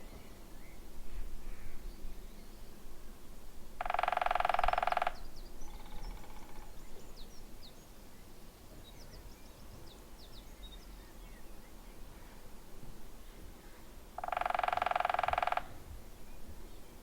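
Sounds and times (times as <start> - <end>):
woodpecker drumming: 3.8 - 6.8, 14.2 - 15.9.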